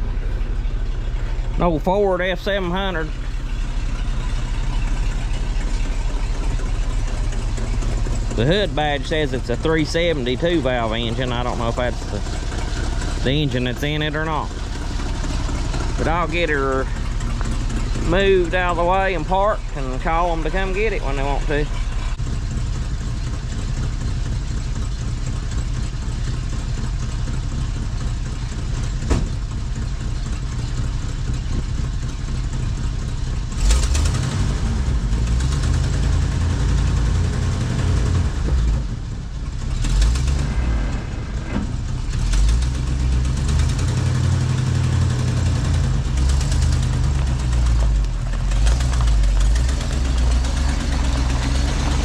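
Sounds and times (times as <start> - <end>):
truck engine running: 0.0 - 52.0
clunk: 28.9 - 29.6, 40.0 - 42.7.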